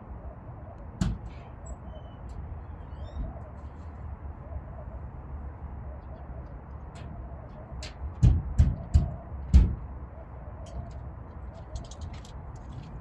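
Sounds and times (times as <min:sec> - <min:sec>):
bird chirps: 0:01.6 - 0:03.9.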